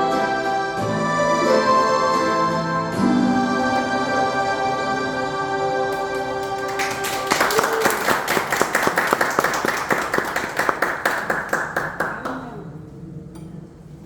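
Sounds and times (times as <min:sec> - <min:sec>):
audience applauding: 0:05.9 - 0:12.6.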